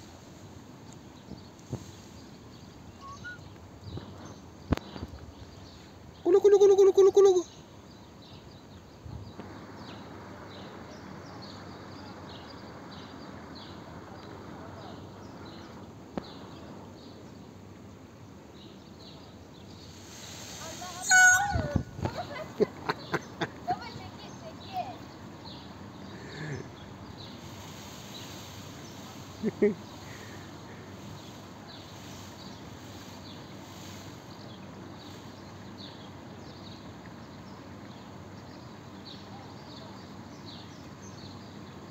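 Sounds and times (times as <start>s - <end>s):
outdoor hiss: 0.0s - 6.3s, 7.4s - 41.9s
background noise: 0.0s - 41.9s
small birds chirping: 0.4s - 41.9s
small bird chirping: 1.2s - 7.5s.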